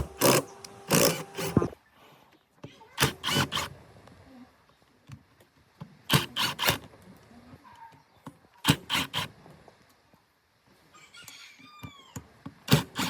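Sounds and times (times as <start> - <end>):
sharp hand tool strokes: 0.0 - 1.8, 3.0 - 3.7, 6.1 - 6.8, 8.6 - 9.3, 12.7 - 13.0.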